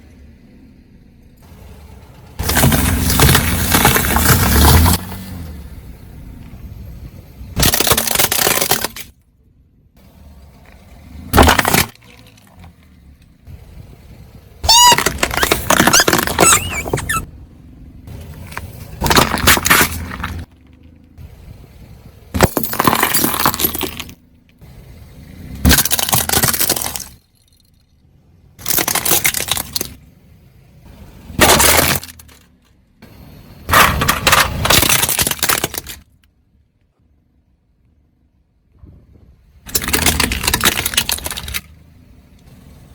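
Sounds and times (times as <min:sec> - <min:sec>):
plastic toy cracking under tyre: 0:07.6 - 0:09.2, 0:14.7 - 0:17.3, 0:19.0 - 0:20.6, 0:25.6 - 0:27.2, 0:28.6 - 0:30.0, 0:31.4 - 0:32.5, 0:33.8 - 0:36.3, 0:39.7 - 0:41.8.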